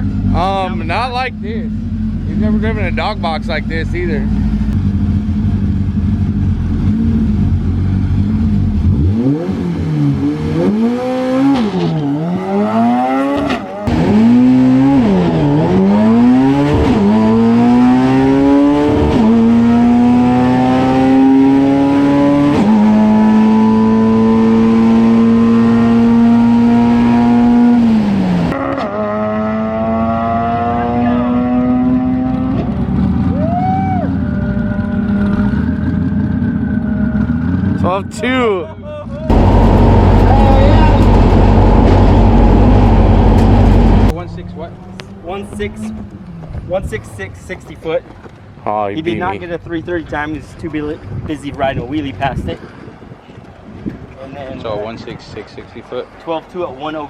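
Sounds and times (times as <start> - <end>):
truck engine revving through gears: 5.9 - 33.3, 39.3 - 44.1.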